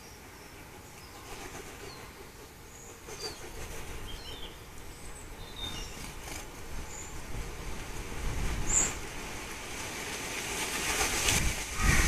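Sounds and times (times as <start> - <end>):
birds chirping: 0.0 - 7.5
wind rumbling on microphone: 3.4 - 9.9, 10.6 - 12.0.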